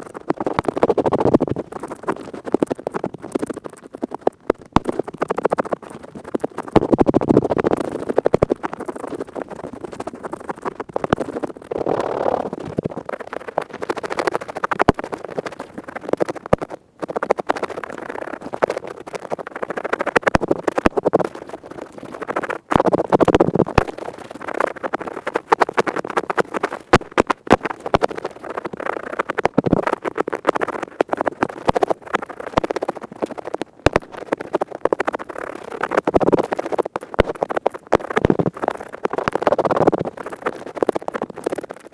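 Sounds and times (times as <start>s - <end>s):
ear pick scraping inside ear: 11.7s - 12.8s.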